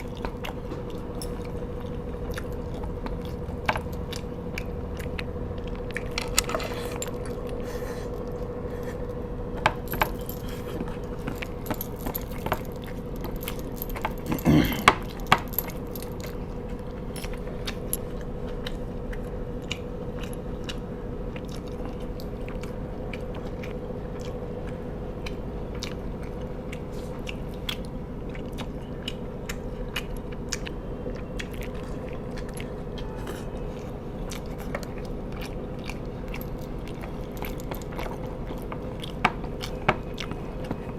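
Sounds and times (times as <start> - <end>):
low hum: 0.0 - 27.2
chewing and biting food: 0.0 - 40.9.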